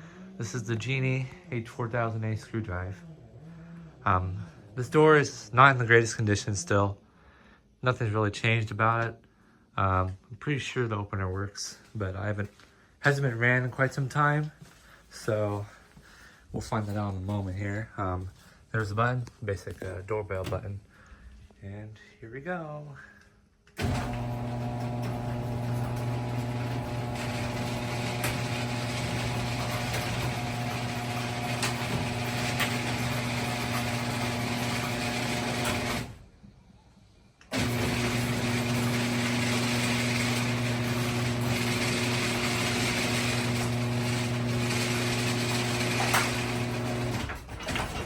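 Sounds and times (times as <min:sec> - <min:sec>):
garage door opener motor humming: 0:23.8 - 0:36.3, 0:37.5 - 0:48.0.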